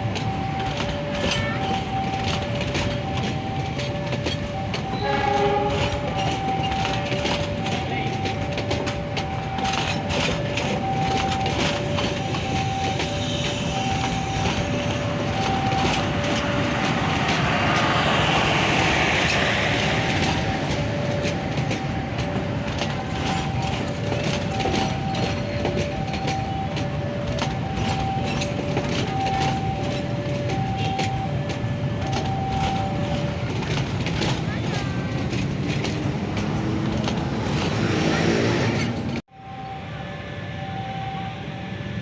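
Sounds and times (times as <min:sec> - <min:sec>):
train passing: 0:00.0 - 0:42.0
two-tone warning signal: 0:00.0 - 0:42.0
train horn blast: 0:04.9 - 0:06.4.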